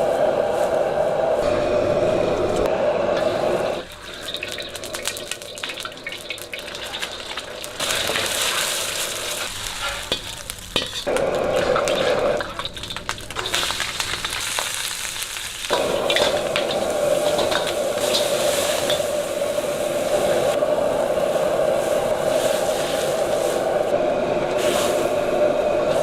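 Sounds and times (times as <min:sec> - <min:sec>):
food sizzling in a hot pan: 0:03.8 - 0:20.6.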